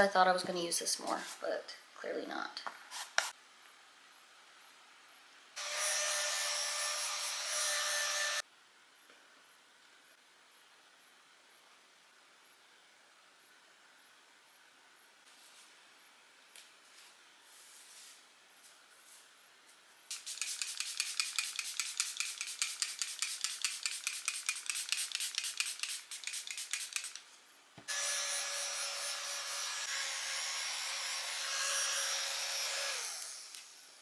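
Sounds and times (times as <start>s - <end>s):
steady hiss with faint whine: 8.4s - 27.9s
makeup brush scratching powder: 20.1s - 27.2s.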